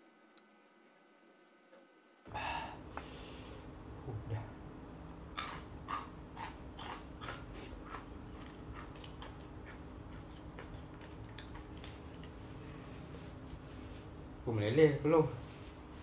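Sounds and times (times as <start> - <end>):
steady low hum: 0.0 - 16.0
crunchy chewing of fried food: 5.3 - 12.9.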